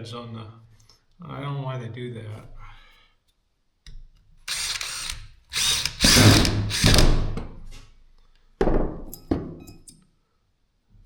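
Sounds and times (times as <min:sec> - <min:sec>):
power driver running: 0:04.5 - 0:07.4.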